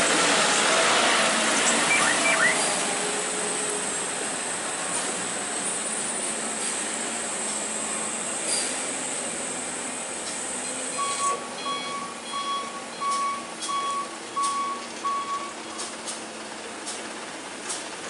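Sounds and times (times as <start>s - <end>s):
engine and road noise: 0.0s - 18.0s
truck reversing alarm beeping: 1.8s - 2.8s, 10.6s - 15.9s.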